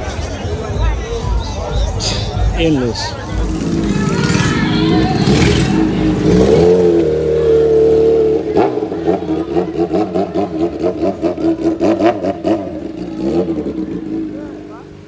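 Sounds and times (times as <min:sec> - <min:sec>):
vehicle engine revving: 0:03.0 - 0:15.0.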